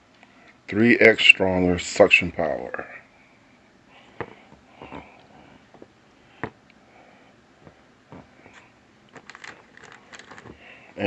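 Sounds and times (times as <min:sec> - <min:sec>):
handling clicks and taps: 0:07.6 - 0:10.6.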